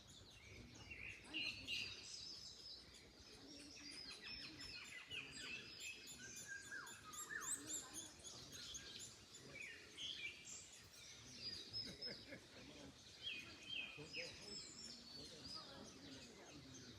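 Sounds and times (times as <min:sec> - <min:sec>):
birds singing and chirping: 0:00.0 - 0:16.9
whistled bird notes: 0:00.2 - 0:12.0.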